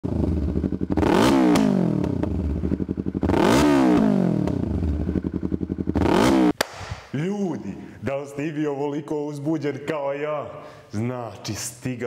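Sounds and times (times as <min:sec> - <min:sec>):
motorcycle engine revving: 0:00.0 - 0:06.6.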